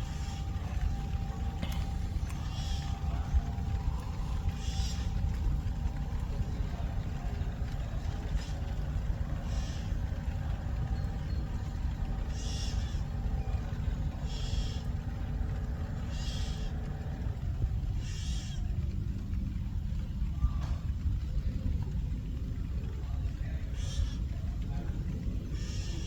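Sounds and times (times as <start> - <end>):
bird squawking: 0.0 - 5.5, 9.3 - 10.1, 11.6 - 15.0, 16.0 - 16.8, 18.0 - 18.7, 23.8 - 24.2, 25.6 - 26.0
low rumble: 0.0 - 26.0.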